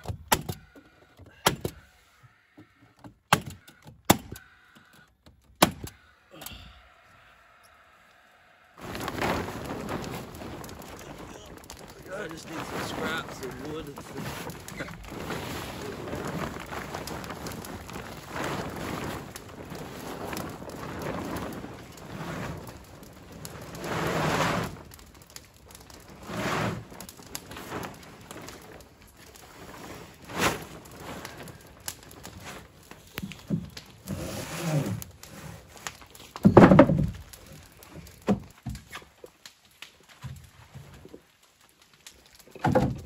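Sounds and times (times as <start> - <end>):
plastic tarp crinkling and rustling: 8.8 - 43.0.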